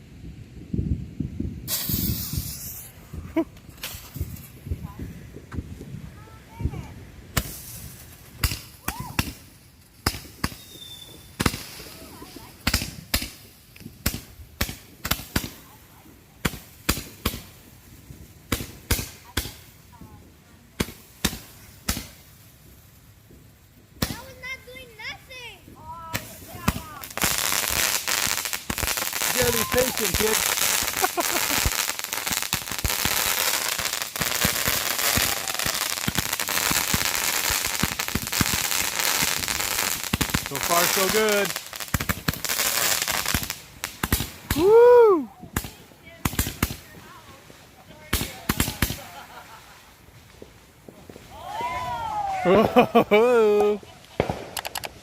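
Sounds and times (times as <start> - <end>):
firework sharp bangs: 1.7 - 3.1, 7.3 - 15.7, 26.1 - 44.7, 48.0 - 49.2, 54.1 - 55.0
fireworks deep thumps: 54.2 - 54.6.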